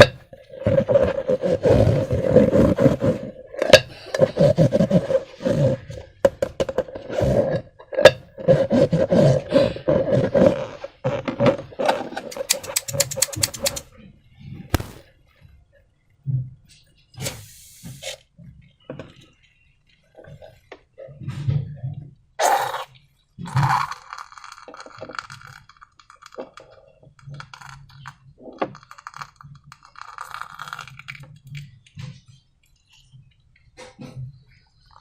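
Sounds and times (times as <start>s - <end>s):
utensils scraping: 11.9s - 13.8s
small clicks and taps: 12.3s - 13.8s.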